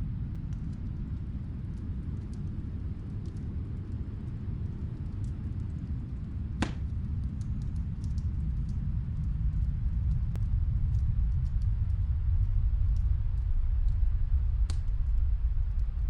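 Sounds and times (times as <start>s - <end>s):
snowstorm wind rumble: 0.0s - 16.0s
wood fire crackling: 0.0s - 16.0s
sharp fire pop: 6.6s - 6.9s.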